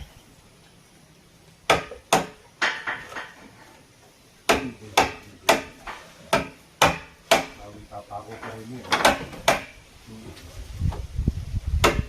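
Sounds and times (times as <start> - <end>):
hand tool striking timber: 1.7 - 3.5, 4.5 - 7.7, 8.3 - 9.8, 11.8 - 12.0.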